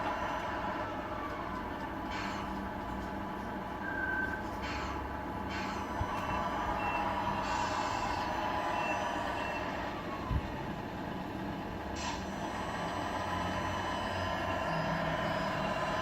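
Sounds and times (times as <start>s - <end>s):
toy truck diesel engine sound: 3.8s - 16.0s.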